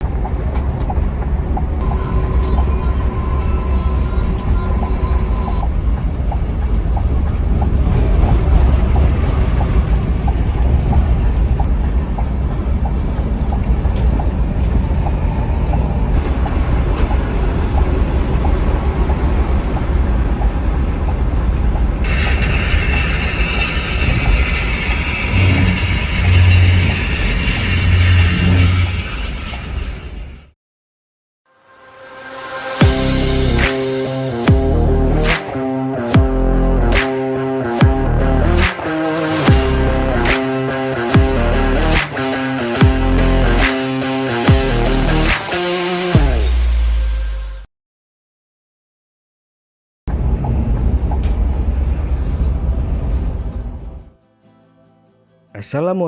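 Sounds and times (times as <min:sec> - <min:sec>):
bus engine and tyre rumble: 0:00.0 - 0:30.6, 0:37.9 - 0:47.7, 0:50.1 - 0:54.1
low pulses: 0:01.6 - 0:30.5, 0:32.8 - 0:47.7.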